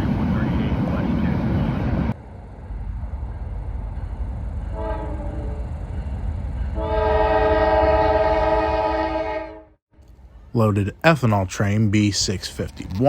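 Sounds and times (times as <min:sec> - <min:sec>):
train rumbling: 0:00.0 - 0:13.0
locomotive air horn: 0:04.7 - 0:05.6, 0:06.8 - 0:09.8.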